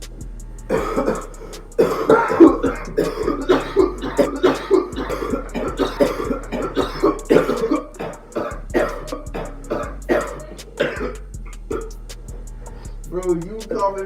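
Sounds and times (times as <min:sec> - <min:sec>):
person coughing hard: 0:00.7 - 0:12.0, 0:13.7 - 0:14.0.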